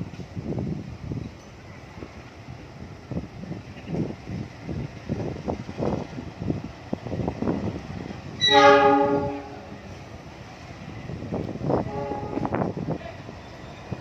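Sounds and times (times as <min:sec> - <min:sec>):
train clattering past: 0:00.0 - 0:14.0
train horn: 0:08.4 - 0:09.8, 0:11.7 - 0:12.8.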